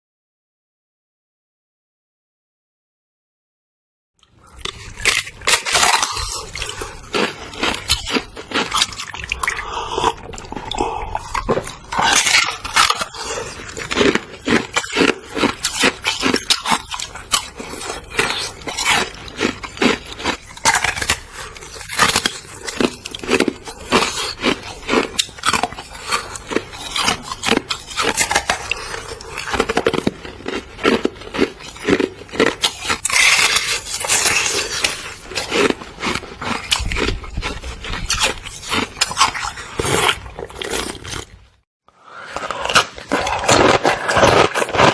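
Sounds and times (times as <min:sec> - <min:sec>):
biting and crunching ice: 0:04.2 - 0:41.4, 0:42.1 - 0:44.9.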